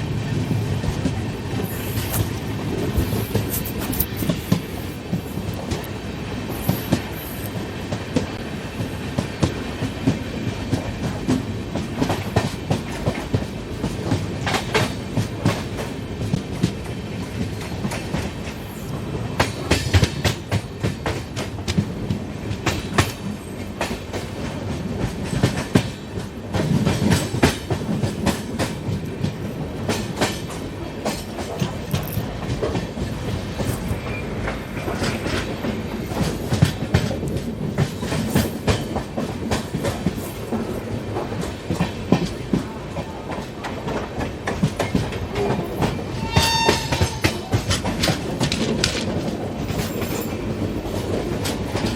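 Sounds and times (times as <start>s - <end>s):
train wheels clattering over rail joints: 19.3s - 51.9s.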